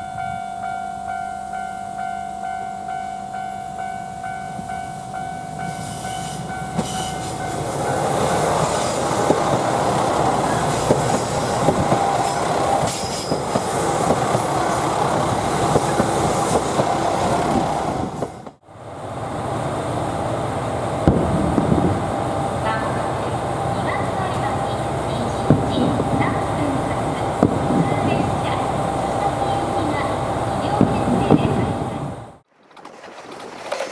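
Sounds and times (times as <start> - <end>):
train wheels clacking over rail joints: 6.7 - 18.6, 32.5 - 33.9.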